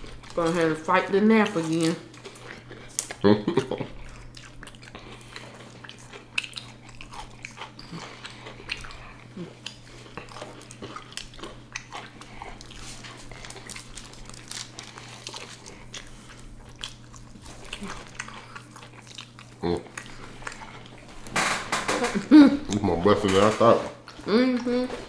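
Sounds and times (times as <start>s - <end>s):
crunchy chewing: 1.4s - 21.3s.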